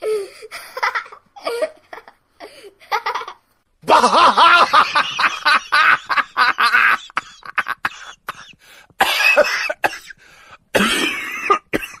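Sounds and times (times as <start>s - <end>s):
person laughing: 2.8s - 7.8s
person coughing: 7.2s - 12.0s.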